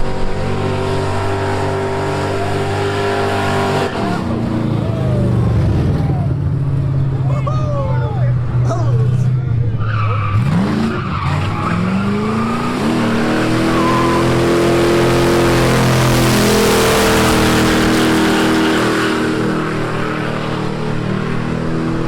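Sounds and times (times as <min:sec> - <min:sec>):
car engine revving: 0:00.0 - 0:22.0
tyres squealing: 0:07.2 - 0:16.0.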